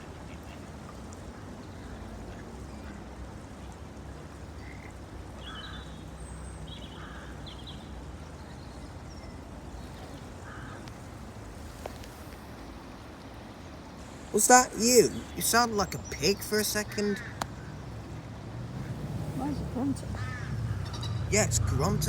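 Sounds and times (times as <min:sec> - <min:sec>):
low outdoor rumble: 0:08.1 - 0:22.0
ducks quacking: 0:14.4 - 0:22.0.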